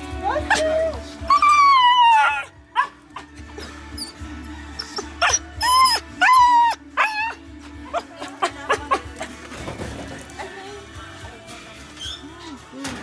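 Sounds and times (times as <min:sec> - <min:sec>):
soft background music: 0:00.0 - 0:13.0
dog whining: 0:00.3 - 0:09.4.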